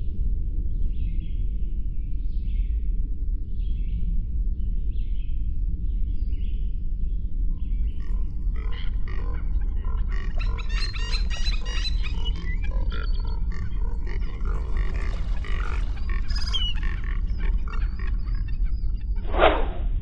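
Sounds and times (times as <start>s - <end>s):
animal calls: 8.0s - 19.2s
steady low rumble: 11.9s - 20.0s.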